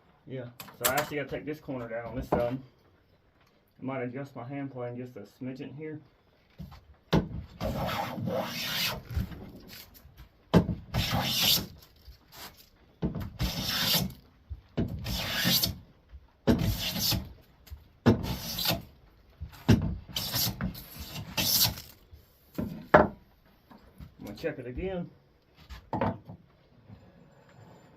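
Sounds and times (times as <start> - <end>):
hand plane rasping on wood: 7.6 - 9.0, 10.9 - 11.7, 13.4 - 14.1, 15.0 - 15.8, 16.6 - 17.3, 18.2 - 18.8, 20.1 - 21.7.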